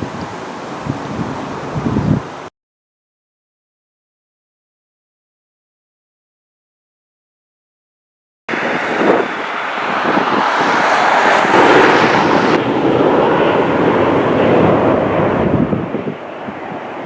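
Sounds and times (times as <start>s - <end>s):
wind buffeting microphone: 0.0s - 2.5s, 8.5s - 17.0s
jet airliner passing overhead: 8.5s - 17.0s.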